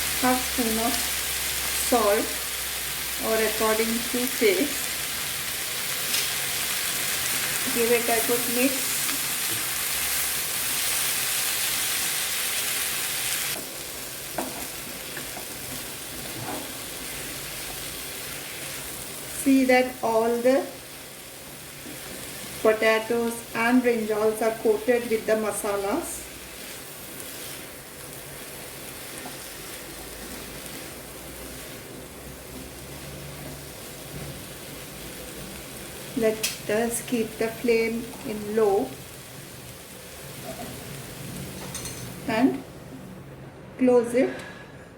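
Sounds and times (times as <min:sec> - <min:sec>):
vegetables sizzling in oil: 0:00.0 - 0:42.8.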